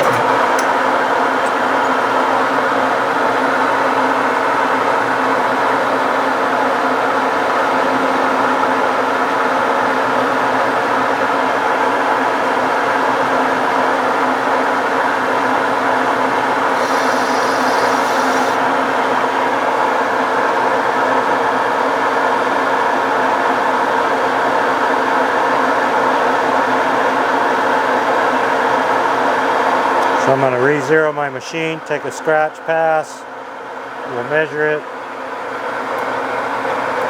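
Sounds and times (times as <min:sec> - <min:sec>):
metal lathe humming: 0:00.0 - 0:04.0, 0:16.0 - 0:19.1
brief high hiss: 0:16.8 - 0:18.6.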